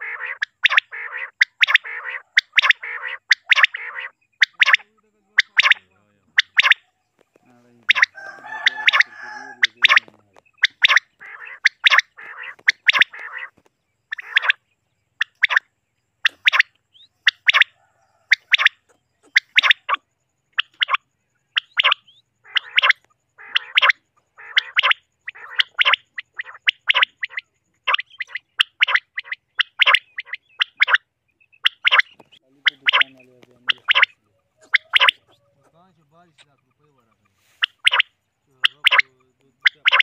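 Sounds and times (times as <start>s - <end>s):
quails calling: 0.0s - 40.0s
raspy buzzy bird calls: 0.0s - 40.0s.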